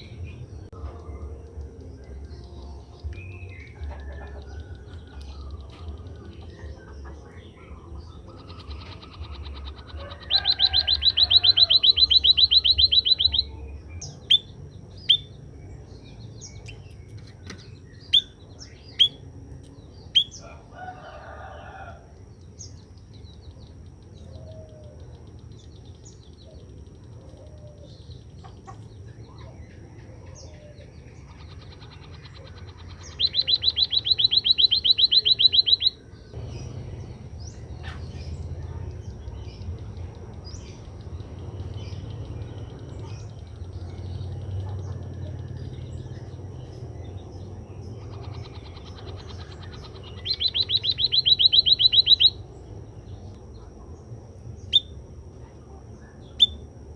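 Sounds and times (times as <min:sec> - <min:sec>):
bird trilling: 0:03.2 - 0:15.3, 0:17.5 - 0:19.3, 0:24.2 - 0:46.6, 0:47.4 - 0:52.5, 0:56.3 - 0:56.7.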